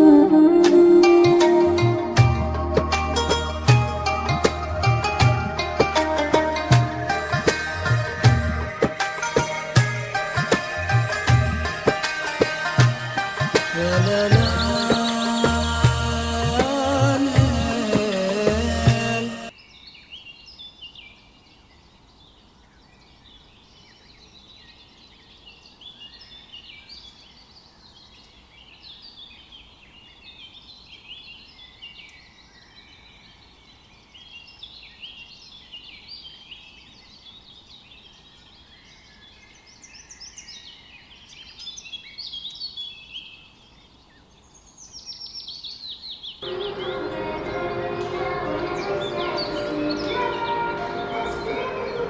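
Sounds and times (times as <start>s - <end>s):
small birds chirping: 13.6s - 52.0s
music with bell-like tones: 46.4s - 52.0s.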